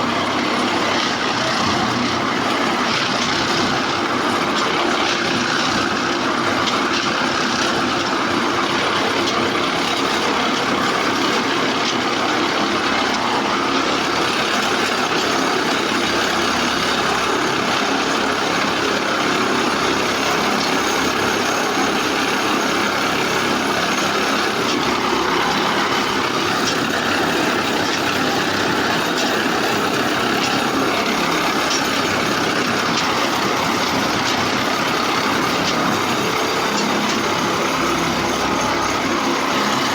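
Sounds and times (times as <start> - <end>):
track maintenance machine running: 0.0 - 39.9.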